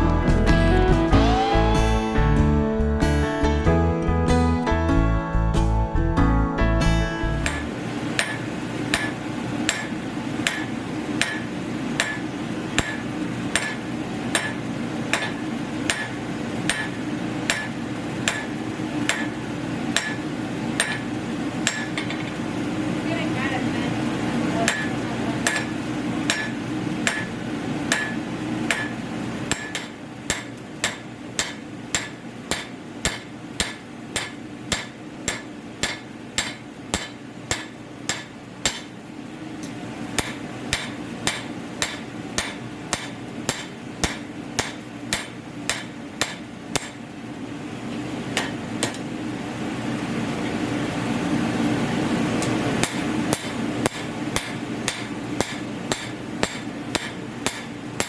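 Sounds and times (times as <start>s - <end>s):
forge blower drone: 0.0s - 8.0s
hammer striking metal on anvil: 7.4s - 12.2s, 12.8s - 19.4s, 20.0s - 20.2s, 20.8s - 21.0s, 21.6s - 22.2s, 24.7s - 25.7s, 26.3s - 27.3s, 27.9s - 39.0s, 40.2s - 47.0s, 48.4s - 49.0s, 52.8s - 57.7s.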